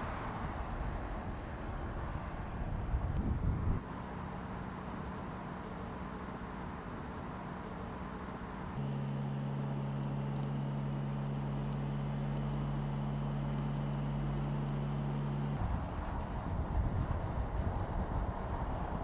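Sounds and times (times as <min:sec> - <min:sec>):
wind and tyre rush: 0:00.0 - 0:04.2, 0:15.6 - 0:19.0
car engine cruising: 0:07.2 - 0:19.0.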